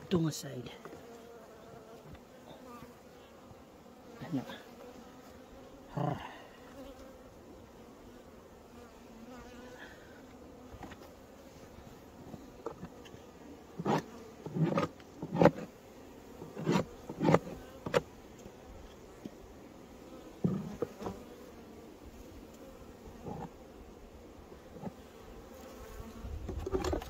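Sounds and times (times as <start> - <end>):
honeybees buzzing: 0.0 - 27.0.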